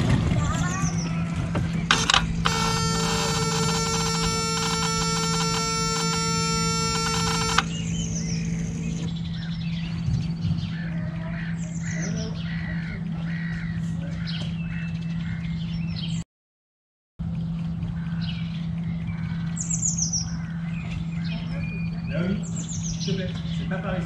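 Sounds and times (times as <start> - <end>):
birds chirping: 0.0 - 16.2, 17.2 - 24.0
steady low hum: 0.0 - 16.2
buzz of many tones: 1.9 - 7.9.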